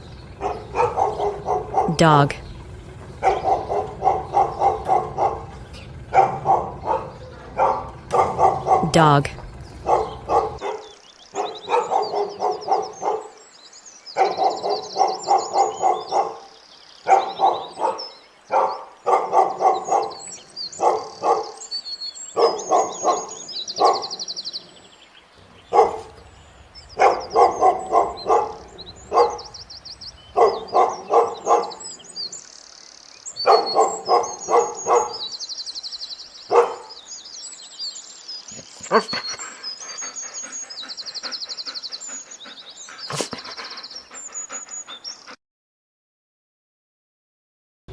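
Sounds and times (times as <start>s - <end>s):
dog barking: 0.0s - 13.4s, 14.2s - 21.7s, 22.3s - 24.4s, 25.4s - 32.4s, 33.4s - 35.4s, 36.5s - 37.1s, 41.2s - 43.6s.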